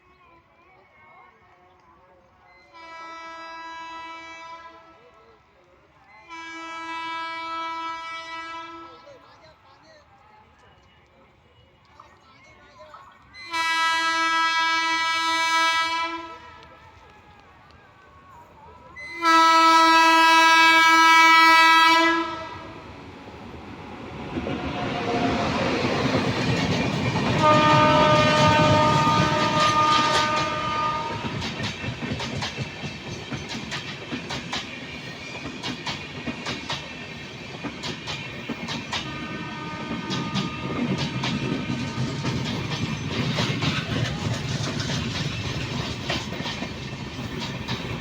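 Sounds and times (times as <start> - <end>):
locomotive horn blast: 2.7 - 5.0, 6.3 - 8.9, 13.4 - 16.7, 19.0 - 22.8, 27.2 - 31.5, 39.0 - 42.3
train rumble: 13.0 - 48.0
wheels clacking over rail joints: 24.3 - 48.0.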